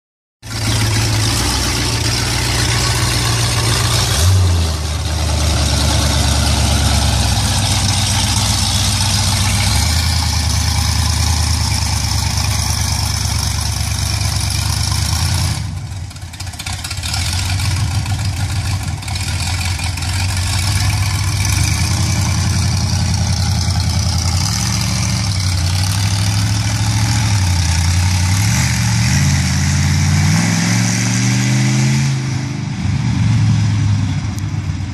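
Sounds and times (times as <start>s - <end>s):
truck engine revving: 0.4s - 34.8s.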